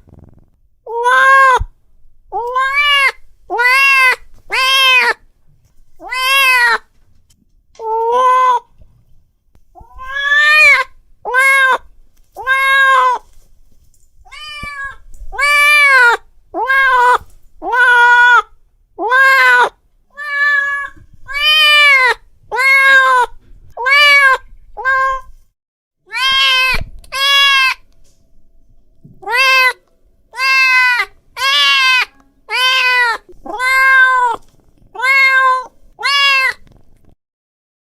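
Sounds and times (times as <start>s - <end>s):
cat meowing: 0.9s - 1.7s, 2.3s - 5.2s, 6.0s - 6.8s, 9.8s - 13.2s, 14.3s - 25.3s, 26.1s - 27.8s, 29.2s - 36.7s.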